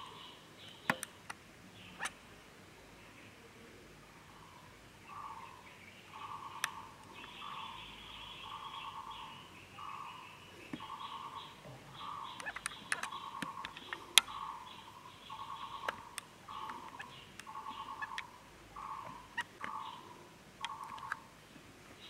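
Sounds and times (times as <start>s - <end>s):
sharp clicks: 0.7s - 1.4s, 6.6s - 7.4s, 12.3s - 14.4s, 15.7s - 18.3s, 20.6s - 21.2s
bird trilled call: 5.1s - 21.2s.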